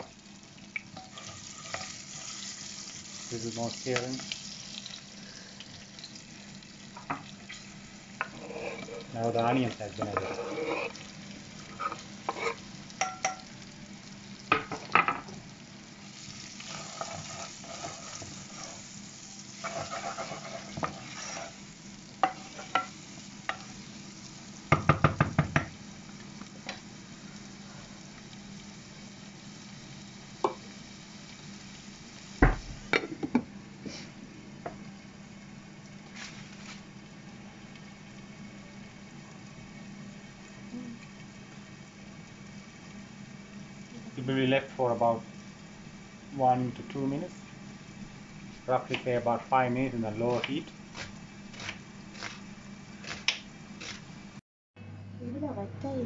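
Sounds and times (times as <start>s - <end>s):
onions sizzling in hot oil: 0.0s - 54.4s
faint hum: 53.6s - 56.0s.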